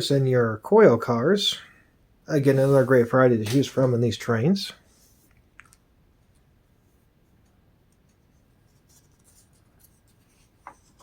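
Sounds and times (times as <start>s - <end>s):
paper pages rustling: 8.0s - 11.0s.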